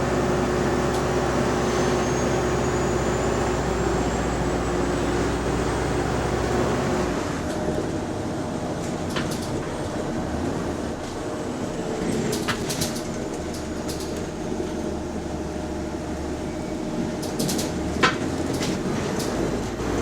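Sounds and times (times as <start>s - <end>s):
bus engine drone: 0.0s - 20.0s
bus body rattling: 7.4s - 20.0s.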